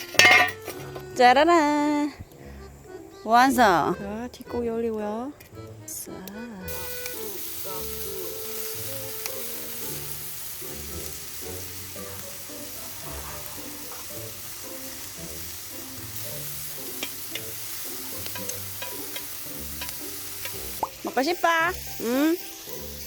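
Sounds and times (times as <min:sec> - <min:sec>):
meat sizzling in a pan: 0:06.7 - 0:23.0.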